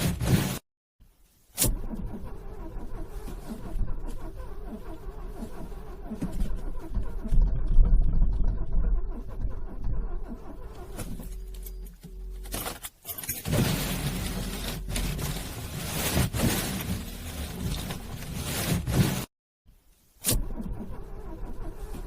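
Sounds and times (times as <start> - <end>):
car starter cranking engine: 1.6 - 11.9, 20.3 - 22.0.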